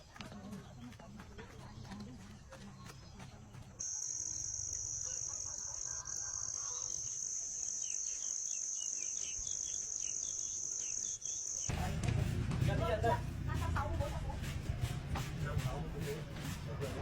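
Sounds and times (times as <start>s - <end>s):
high-pitched insect drone: 3.8s - 11.7s.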